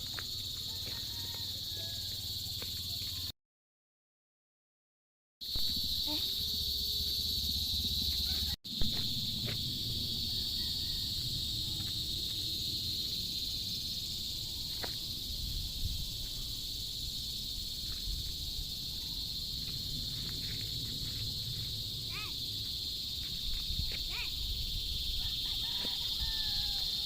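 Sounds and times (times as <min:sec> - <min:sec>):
insect chorus chirping: 0:00.0 - 0:03.3, 0:05.4 - 0:27.0
low outdoor rumble: 0:05.6 - 0:24.7.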